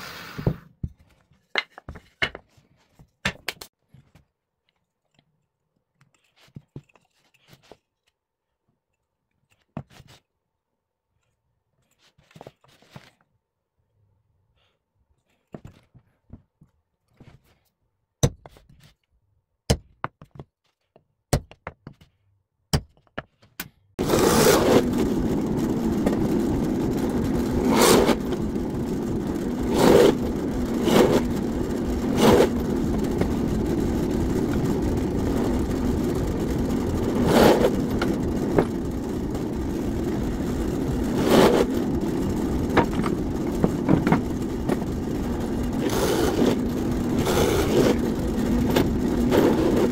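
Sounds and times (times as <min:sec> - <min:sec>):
knocks and clicks of wood and tools: 0:00.4 - 0:05.3, 0:18.2 - 0:23.9, 0:42.7 - 0:44.8
woodworking power tool running: 0:24.0 - 0:49.9.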